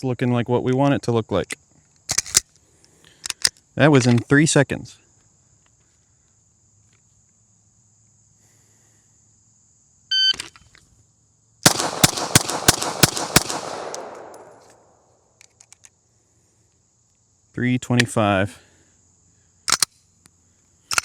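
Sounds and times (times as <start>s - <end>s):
rapid pistol shots: 11.6s - 14.9s.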